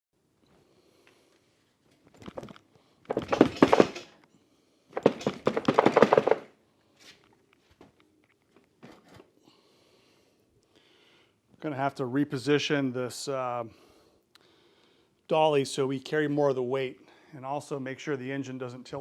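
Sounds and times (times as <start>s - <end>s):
rapid clicking and rattling of tools: 3.1s - 4.1s, 5.0s - 6.5s.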